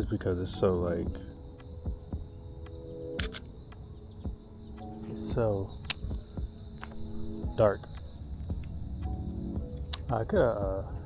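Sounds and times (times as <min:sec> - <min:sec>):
crickets trilling: 0:00.0 - 0:11.0
sharp clicks: 0:02.7 - 0:03.9, 0:05.8 - 0:06.1.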